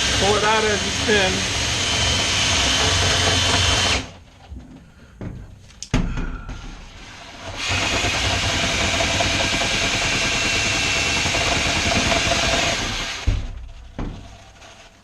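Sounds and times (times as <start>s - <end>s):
sharp knocks: 11.8s - 14.4s.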